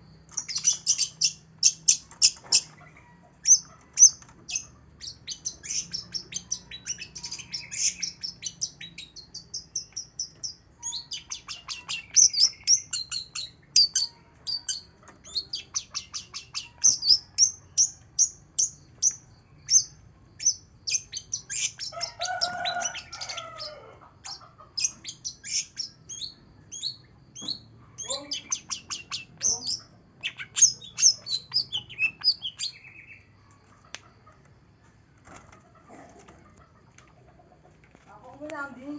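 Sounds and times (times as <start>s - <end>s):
bird high chirps and trills: 0.3s - 33.4s.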